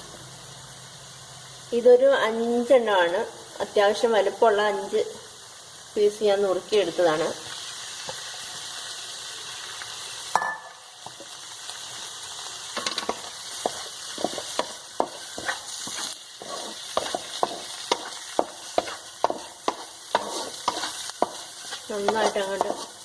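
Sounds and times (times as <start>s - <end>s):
sizzling in hot oil: 0.0s - 23.0s
spatula scraping a pan: 12.8s - 23.0s.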